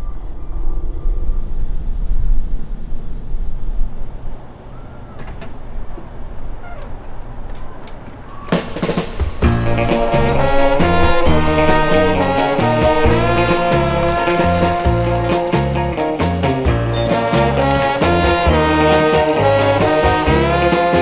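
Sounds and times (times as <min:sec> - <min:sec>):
wind and motorcycle road rumble: 0:00.0 - 0:15.7
swing music with drums and brass: 0:08.5 - 0:21.0.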